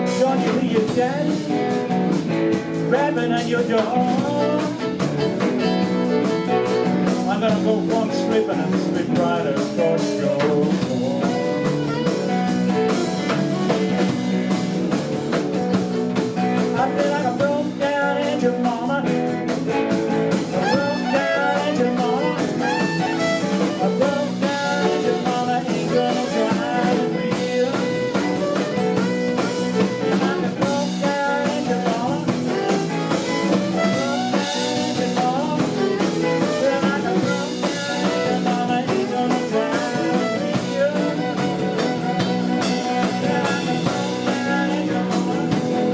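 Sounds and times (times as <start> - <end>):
blues band playing: 0.0 - 45.9
violin sliding notes: 20.5 - 30.5, 32.5 - 44.6.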